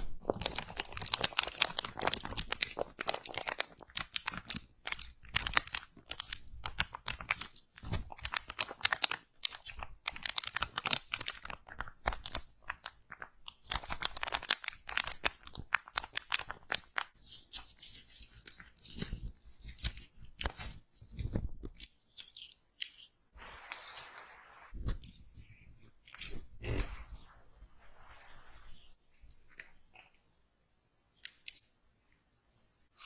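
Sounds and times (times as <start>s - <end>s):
slime crackling and popping: 0.1s - 20.7s.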